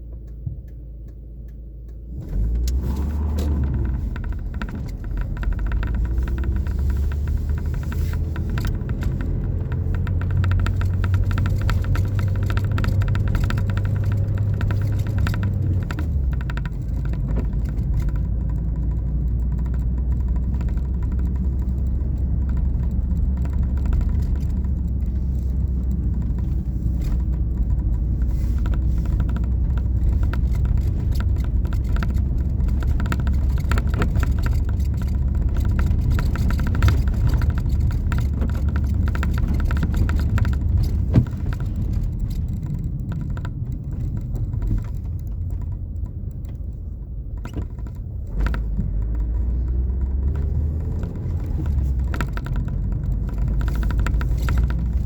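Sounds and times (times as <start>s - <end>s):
moving vehicle rumble: 0.0s - 55.0s.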